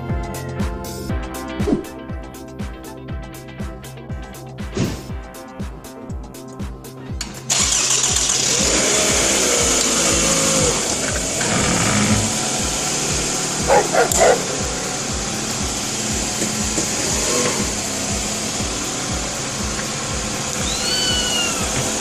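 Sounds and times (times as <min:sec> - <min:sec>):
steady rushing noise: 0:08.0 - 0:22.0
rubber chicken squawking: 0:20.6 - 0:21.8.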